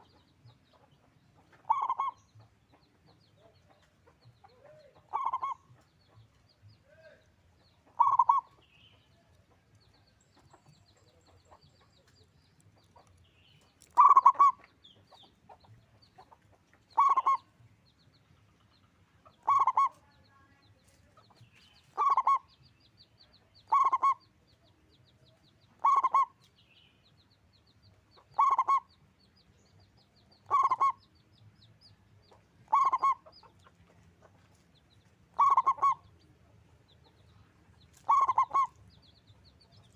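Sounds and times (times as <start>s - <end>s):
dove cooing: 1.6s - 2.2s, 4.5s - 5.6s, 7.9s - 8.5s, 13.9s - 14.6s, 17.0s - 17.4s, 19.4s - 20.0s, 21.9s - 22.5s, 23.7s - 24.2s, 25.8s - 26.4s, 28.3s - 28.9s, 30.4s - 31.0s, 32.7s - 33.2s, 35.4s - 36.0s, 38.0s - 38.8s.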